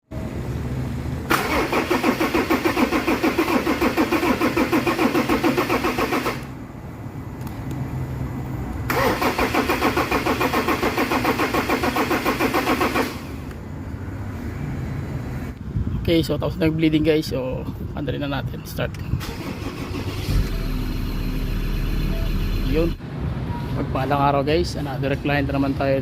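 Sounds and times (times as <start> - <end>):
starter motor cranking engine: 1.3 - 6.5, 8.9 - 13.4, 19.2 - 20.7.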